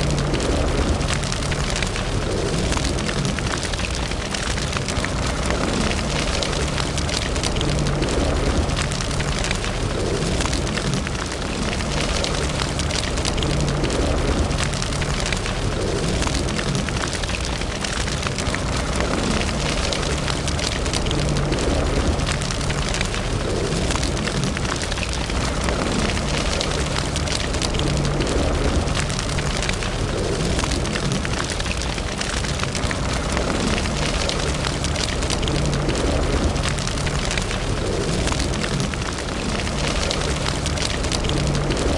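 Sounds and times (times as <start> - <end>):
fire crackling and popping: 0.0 - 41.9
fire rumbling: 0.0 - 41.9.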